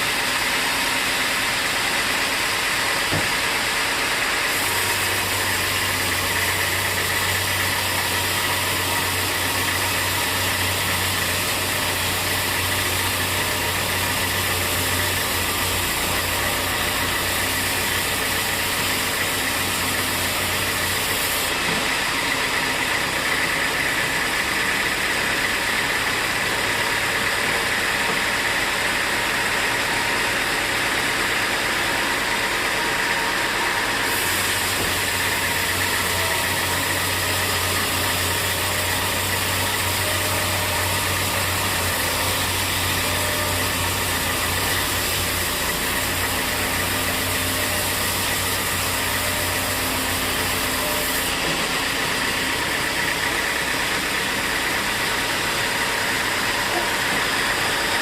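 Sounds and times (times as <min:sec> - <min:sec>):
engine-like low hum: 0:00.0 - 0:58.0
sawmill machinery running: 0:00.0 - 0:58.0.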